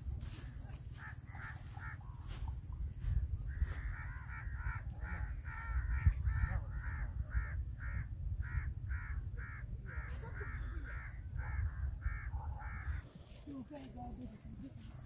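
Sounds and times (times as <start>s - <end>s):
bird cawing: 3.5s - 13.1s.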